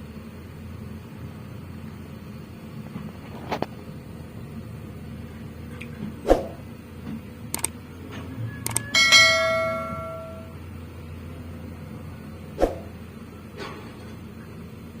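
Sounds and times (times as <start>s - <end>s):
loud metallic ring: 8.7s - 10.8s.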